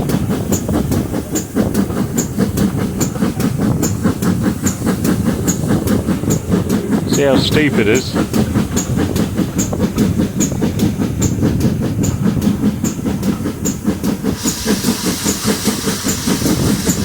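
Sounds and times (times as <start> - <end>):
wheels clacking over rails: 0.0 - 7.1, 8.2 - 17.0
steam locomotive chuffing: 0.0 - 17.0
steam hiss: 13.8 - 17.0.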